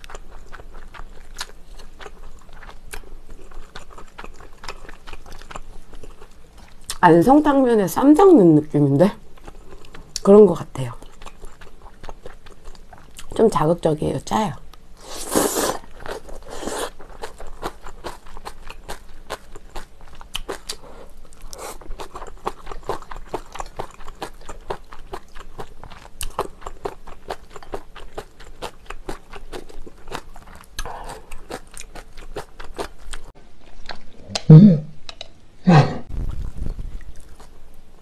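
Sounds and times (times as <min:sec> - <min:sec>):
wet chewing: 0:00.0 - 0:07.0, 0:09.3 - 0:13.4, 0:15.0 - 0:34.5
slurping noodles: 0:15.0 - 0:17.0.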